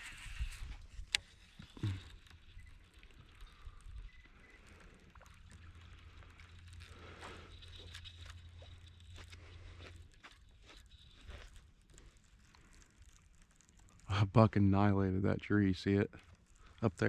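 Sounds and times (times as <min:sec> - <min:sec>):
light water: 0:00.0 - 0:17.0
low steady hum: 0:00.0 - 0:17.0.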